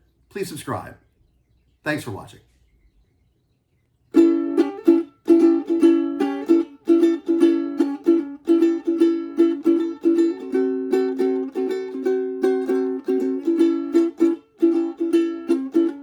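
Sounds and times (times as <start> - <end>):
ukulele plucked tune: 4.1 - 16.0.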